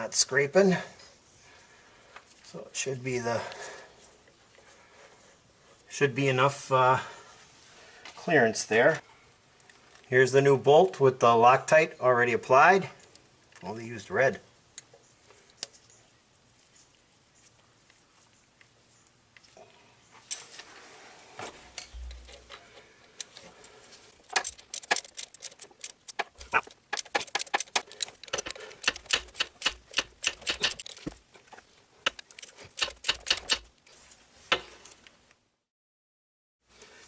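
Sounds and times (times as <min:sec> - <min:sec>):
ratchet wrench clicking: 0:27.0 - 0:31.0, 0:32.1 - 0:33.6.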